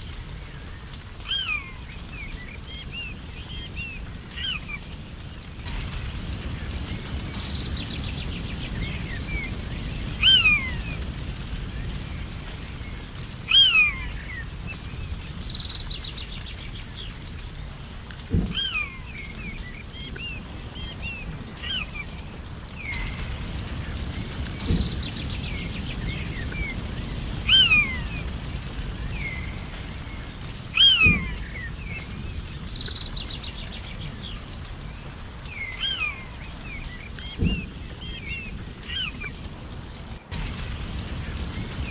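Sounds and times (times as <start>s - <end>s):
steady low rumble: 0.0s - 41.9s
bird trill: 10.2s - 10.8s, 30.8s - 31.9s.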